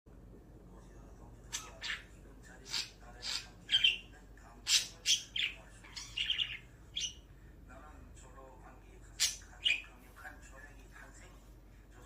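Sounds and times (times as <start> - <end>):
budgerigar chirping: 1.5 - 7.2, 9.2 - 9.9
budgerigar warbling chatter: 1.5 - 7.2.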